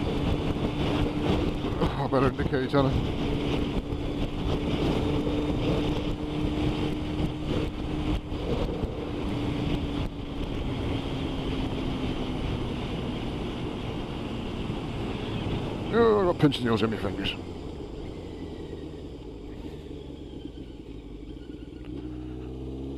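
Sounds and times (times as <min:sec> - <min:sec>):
wind noise on microphone: 0:00.0 - 0:16.1
motorcycle engine: 0:00.0 - 0:22.9.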